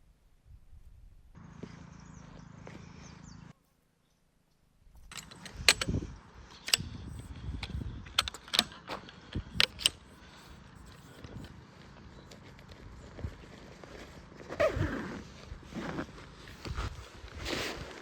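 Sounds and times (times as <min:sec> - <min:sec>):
metallic clinks of gear handled: 0:05.0 - 0:11.5.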